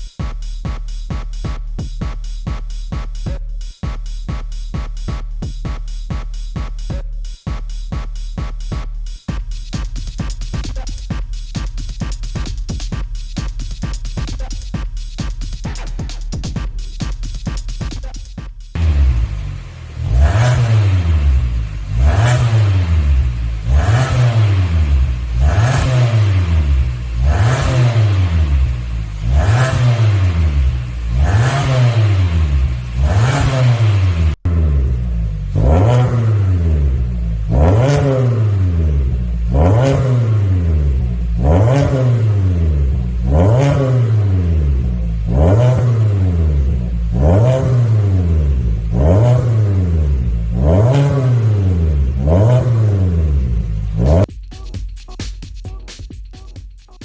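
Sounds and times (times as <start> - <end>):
car engine revving: 18.7 - 54.3.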